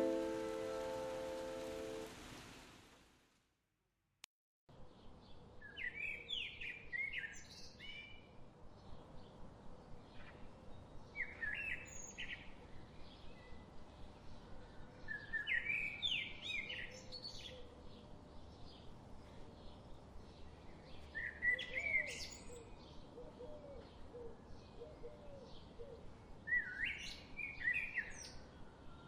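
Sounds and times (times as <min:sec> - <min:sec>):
steady background hiss: 0:00.0 - 0:03.4
songbirds chirping: 0:04.7 - 0:29.0.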